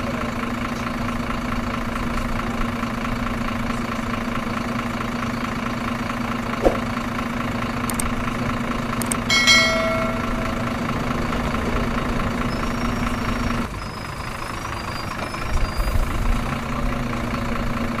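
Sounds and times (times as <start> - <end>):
engine idling: 0.0 - 18.0
short metallic ring: 9.3 - 10.9.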